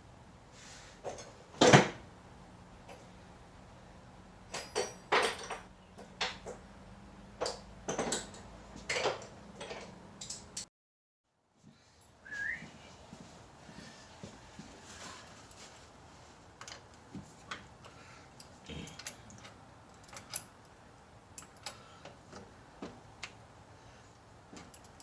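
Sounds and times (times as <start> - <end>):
knocks and clanks on engine: 7.4 - 10.6.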